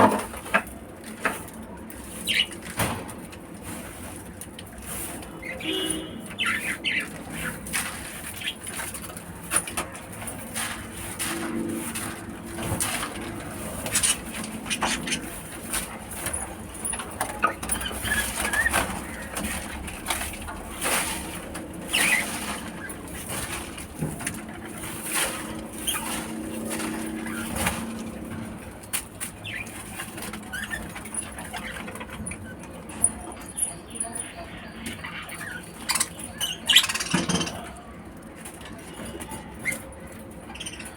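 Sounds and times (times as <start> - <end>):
lovebirds chirping: 5.3 - 8.8, 21.9 - 23.0, 29.4 - 37.8, 39.2 - 40.9.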